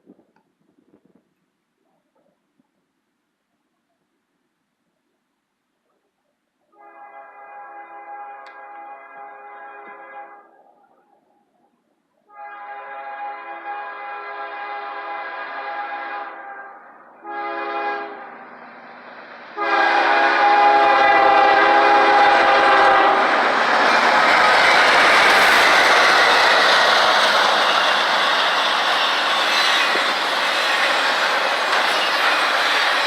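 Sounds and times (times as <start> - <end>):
locomotive air horn blasts: 6.7 - 10.6, 12.2 - 18.5, 19.6 - 23.4
passing train diesel and wheels: 6.7 - 33.0.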